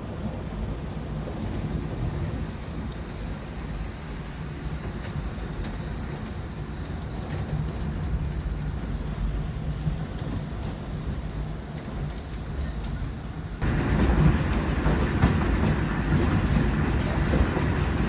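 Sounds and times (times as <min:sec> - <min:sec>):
rain falling: 0:13.6 - 0:18.0.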